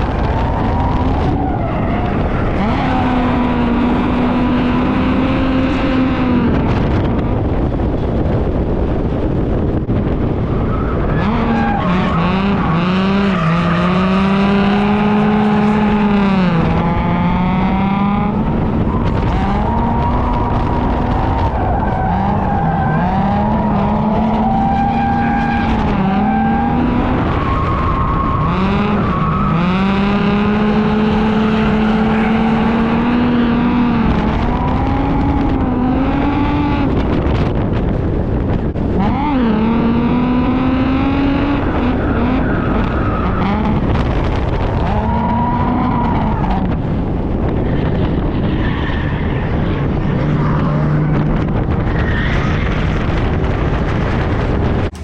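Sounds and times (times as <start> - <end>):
car engine revving: 0.0 - 55.0
tyre and road noise: 0.0 - 55.0.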